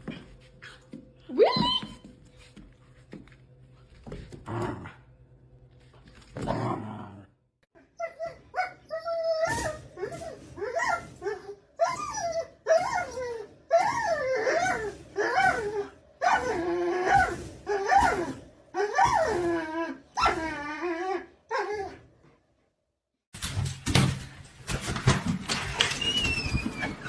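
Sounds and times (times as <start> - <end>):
dog whining and yowling: 7.9 - 22.0.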